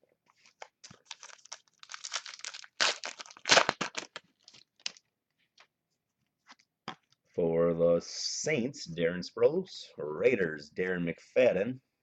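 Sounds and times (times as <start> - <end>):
wrapper crinkling and tearing: 0.4 - 5.0.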